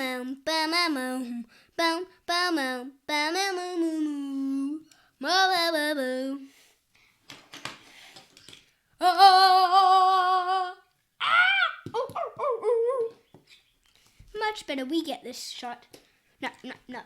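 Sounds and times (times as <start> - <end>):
child singing wordless notes: 0.0 - 6.5, 9.0 - 10.9, 11.9 - 13.2.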